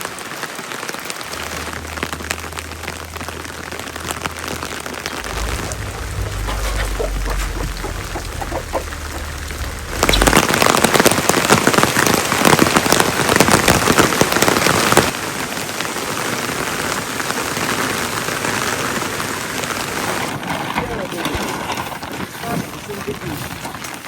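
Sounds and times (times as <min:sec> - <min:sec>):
rain falling: 0:00.0 - 0:24.0
low rumble: 0:01.1 - 0:12.3.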